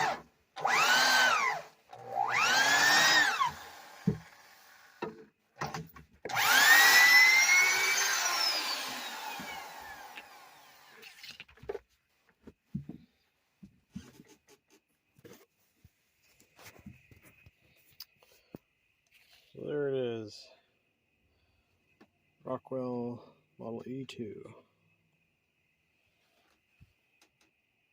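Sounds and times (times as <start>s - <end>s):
electric drill motor whining: 0.0s - 11.2s.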